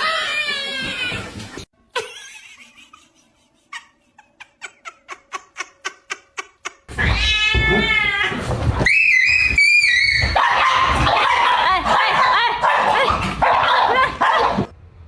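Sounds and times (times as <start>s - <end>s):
cat yowling: 7.0s - 11.0s.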